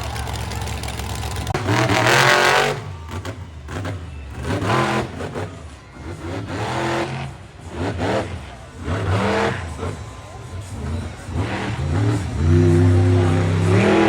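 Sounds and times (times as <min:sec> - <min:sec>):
monster truck engine revving: 0:00.0 - 0:14.0.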